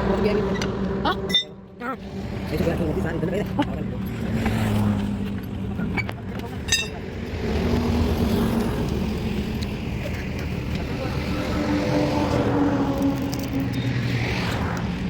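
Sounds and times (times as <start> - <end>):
metallic clink: 1.3 - 1.6, 6.6 - 7.0.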